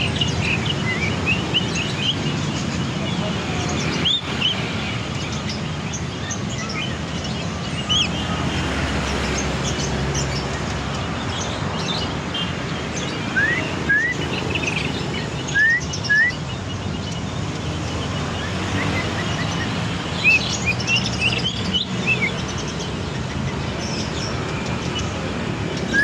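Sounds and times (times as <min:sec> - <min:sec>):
bird chirping and whistling: 0:00.0 - 0:02.5, 0:13.2 - 0:16.5, 0:18.2 - 0:22.5, 0:25.7 - 0:26.0.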